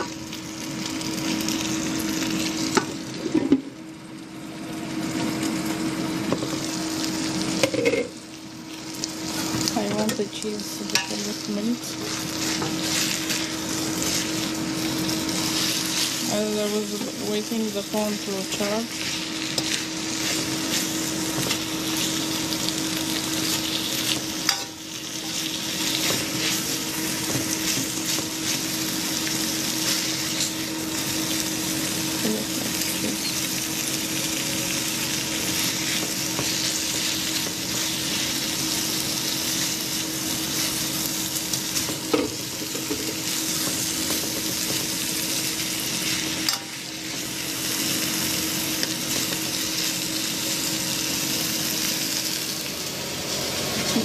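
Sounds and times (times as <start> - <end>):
food sizzling in a pan: 0.0 - 54.0.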